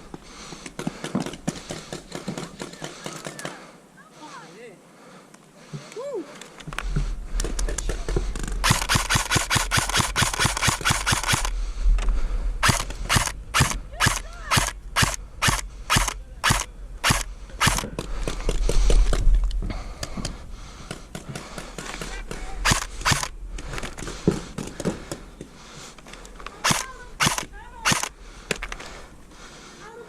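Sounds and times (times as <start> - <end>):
airsoft gun firing: 8.6 - 11.5, 12.6 - 17.9, 22.6 - 23.3, 26.6 - 28.1.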